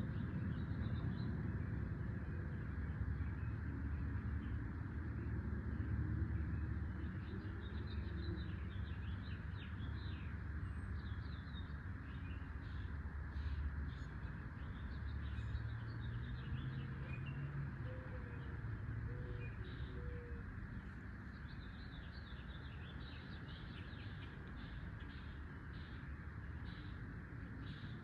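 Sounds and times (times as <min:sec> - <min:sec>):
steady hiss with low rumble: 0:00.0 - 0:16.8, 0:17.4 - 0:28.0
small birds chirping: 0:05.2 - 0:28.0.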